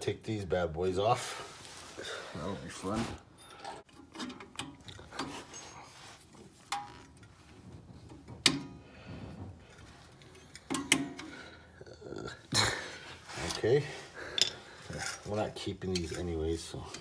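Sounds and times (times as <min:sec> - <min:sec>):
metal clicks and knocks: 0:03.8 - 0:05.3, 0:08.1 - 0:08.8, 0:10.4 - 0:11.4.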